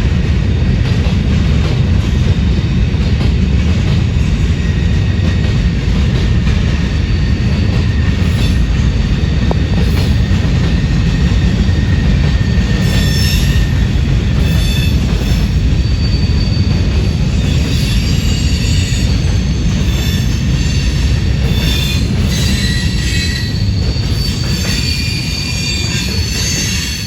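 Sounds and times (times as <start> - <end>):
train wheels rumbling on rail: 0.0 - 27.0
high-pitched wheel squeals: 11.6 - 13.8, 14.4 - 27.0.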